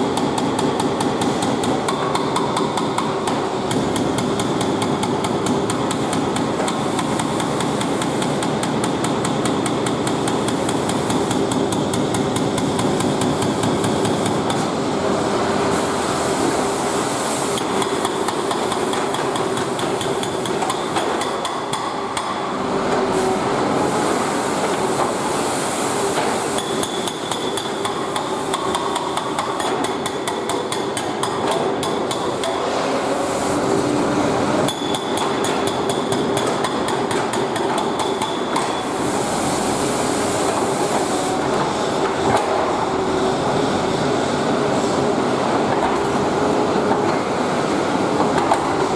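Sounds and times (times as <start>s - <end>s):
hydraulic breaker hammering: 0.0s - 14.7s, 17.6s - 22.6s, 26.2s - 32.7s, 34.6s - 38.9s.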